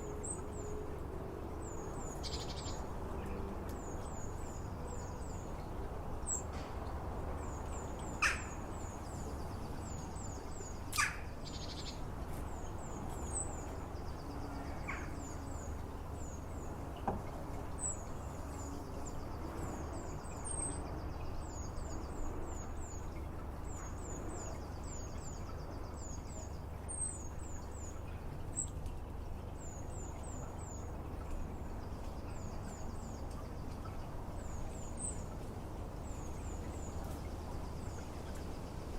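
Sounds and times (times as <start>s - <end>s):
low background hum: 0.0s - 38.9s
songbirds chirping: 0.0s - 38.9s
sharp bird calls: 10.9s - 11.3s.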